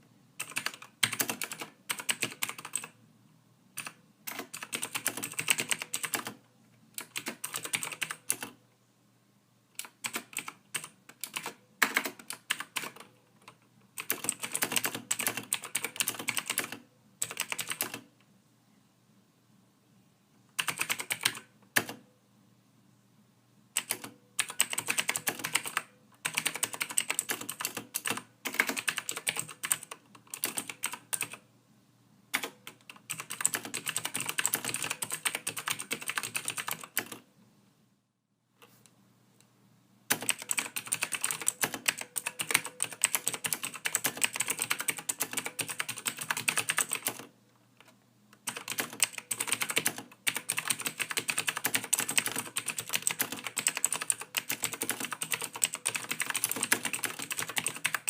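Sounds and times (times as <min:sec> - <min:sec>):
typing on a computer keyboard: 0:00.4 - 0:03.0, 0:03.8 - 0:06.4, 0:07.0 - 0:08.6, 0:09.8 - 0:18.1, 0:20.6 - 0:22.0, 0:23.8 - 0:31.4, 0:32.3 - 0:37.2, 0:40.1 - 0:58.0.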